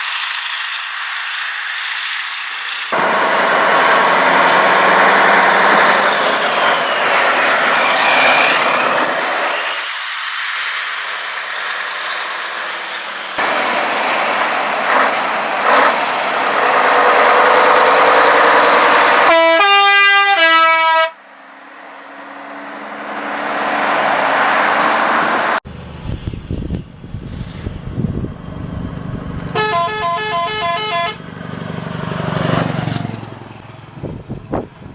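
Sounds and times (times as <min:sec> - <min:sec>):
heavy trucks driving past: 0:00.0 - 0:34.9
truck air horn two-note: 0:19.2 - 0:21.2, 0:29.5 - 0:31.2.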